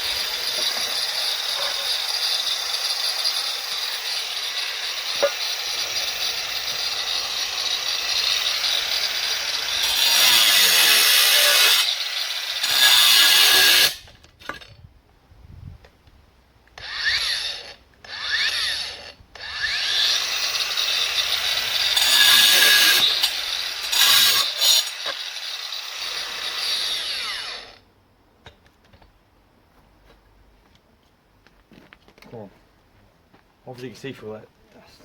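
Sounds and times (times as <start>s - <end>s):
angle grinder cutting masonry: 0.0s - 14.0s, 16.8s - 27.8s.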